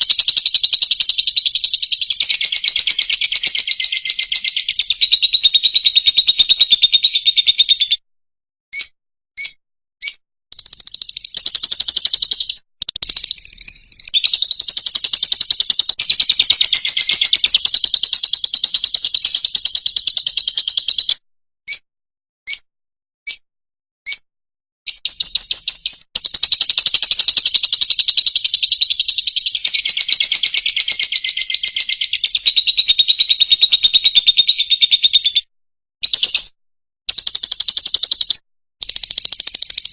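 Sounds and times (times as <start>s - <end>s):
lovebird chattering twitter: 0.0s - 7.9s, 8.8s - 21.1s, 24.9s - 35.3s, 37.1s - 39.9s
single bird chirps: 0.0s - 8.0s, 8.7s - 21.8s, 22.5s - 22.7s, 24.0s - 24.2s, 24.9s - 35.4s.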